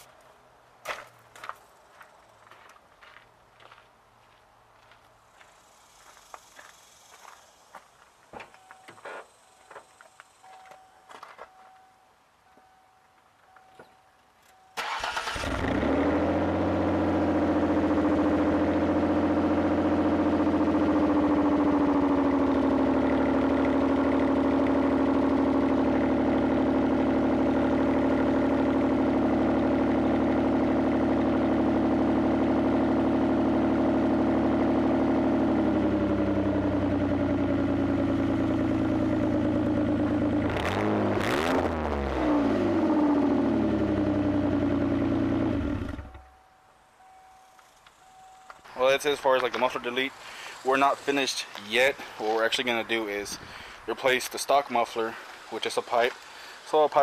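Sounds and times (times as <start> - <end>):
car engine starting and idling: 14.4 - 57.0
engine revving: 14.8 - 46.3.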